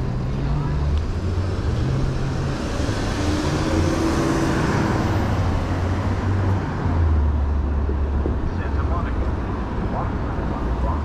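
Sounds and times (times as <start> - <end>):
bicycle road noise: 0.0 - 11.0
traffic noise: 0.0 - 11.0.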